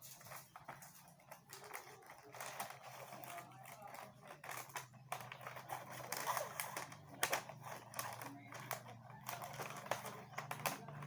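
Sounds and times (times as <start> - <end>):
plastic toy parts clicking: 0.0 - 11.0.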